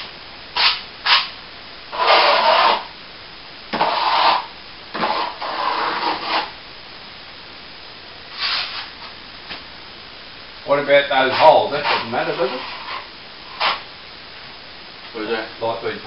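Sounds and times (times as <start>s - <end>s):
plastering tool scraping wall: 1.9s - 2.9s, 3.7s - 6.5s, 8.3s - 8.9s, 11.3s - 13.8s.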